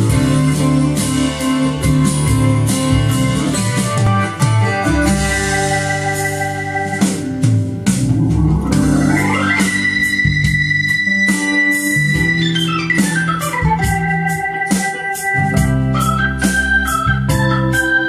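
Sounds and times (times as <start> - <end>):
electronic music with organ chords: 0.0 - 18.0
pitch sweep: 5.4 - 14.1.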